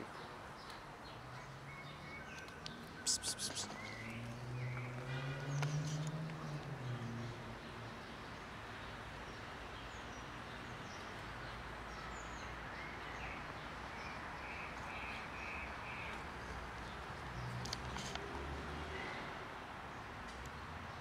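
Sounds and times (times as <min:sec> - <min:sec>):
outdoor background noise: 0:00.0 - 0:21.0
faint bird chirps: 0:01.8 - 0:04.2
bird calling: 0:03.0 - 0:04.0.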